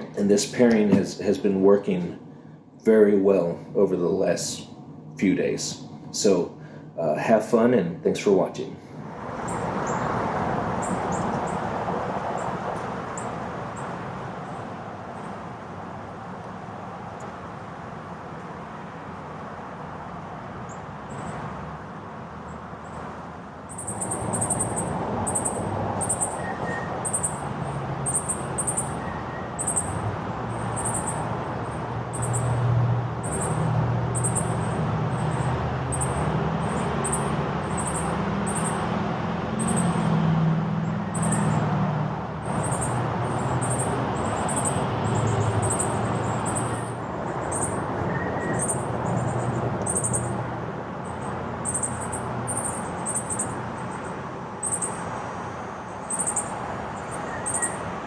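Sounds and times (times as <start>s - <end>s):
bird high chirp: 23.7s - 38.9s, 39.6s - 40.2s, 41.0s - 41.7s, 42.4s - 50.4s, 51.0s - 55.2s, 55.9s - 57.9s.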